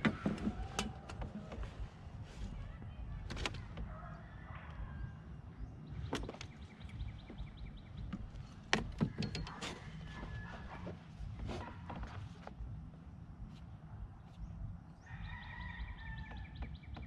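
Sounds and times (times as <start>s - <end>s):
sharp knocks and clicks: 6.0s - 9.9s.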